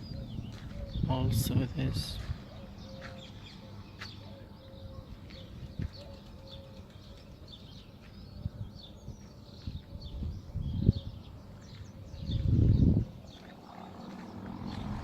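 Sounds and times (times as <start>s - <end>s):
dove cooing: 0.0s - 1.1s, 2.3s - 7.2s
small birds chirping: 0.0s - 15.0s.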